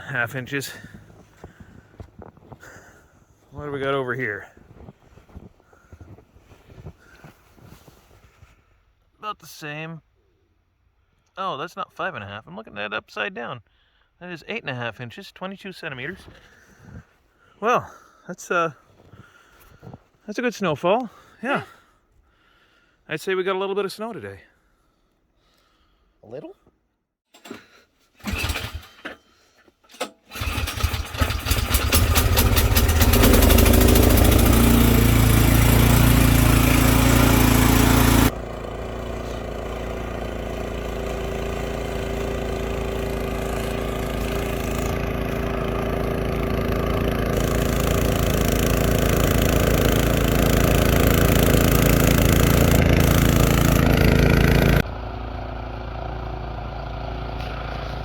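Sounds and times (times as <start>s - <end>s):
engine cranking and running: 28.2s - 29.2s, 29.9s - 58.0s.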